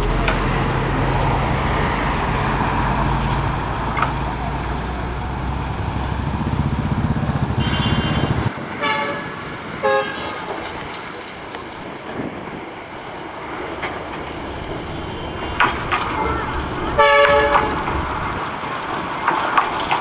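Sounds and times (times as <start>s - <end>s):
locomotive engine rumble: 0.0s - 8.8s, 9.4s - 20.0s
train running: 0.0s - 20.0s
short horn toots: 14.4s - 18.4s.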